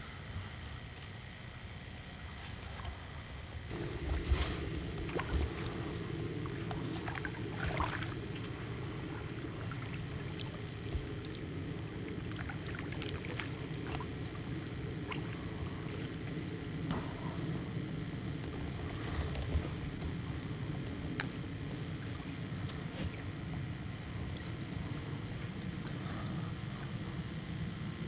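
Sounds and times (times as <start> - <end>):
steady low hum: 0.0 - 28.0
light water splashes: 3.7 - 17.2.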